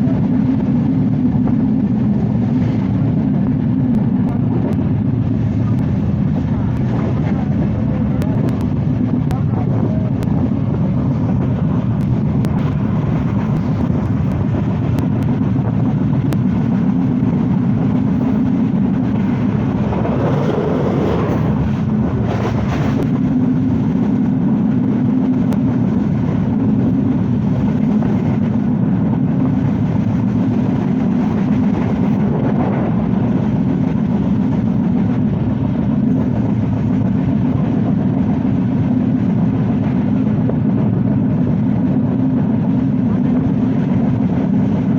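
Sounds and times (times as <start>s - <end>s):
train wheels rumbling on track: 0.0s - 44.9s.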